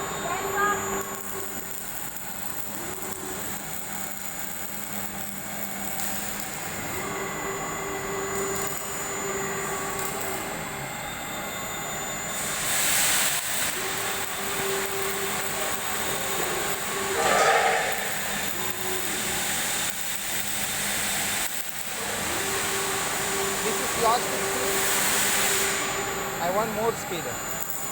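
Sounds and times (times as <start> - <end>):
carving machine motor whine: 0.0 - 27.9
brief loud hiss: 17.1 - 19.0.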